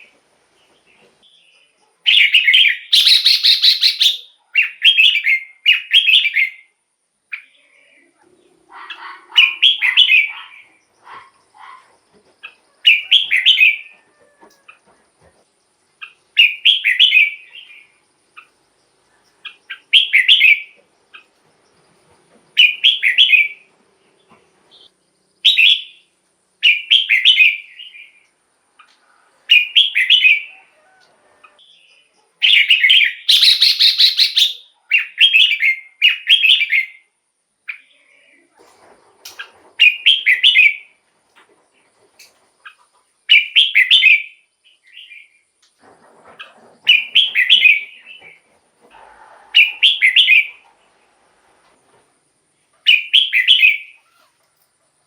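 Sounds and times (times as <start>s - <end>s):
bird singing whistled phrases: 2.1s - 6.7s, 32.5s - 37.0s.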